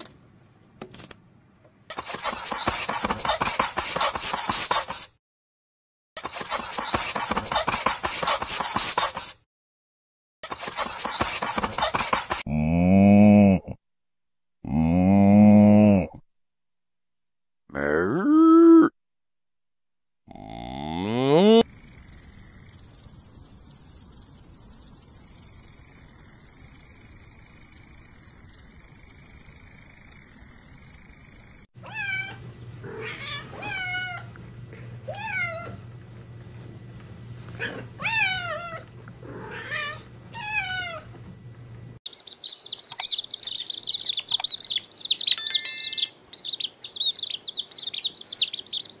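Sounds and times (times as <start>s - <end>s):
cat meowing: 31.8s - 34.3s, 35.1s - 35.8s, 37.6s - 41.1s
chicks peeping: 42.1s - 49.0s.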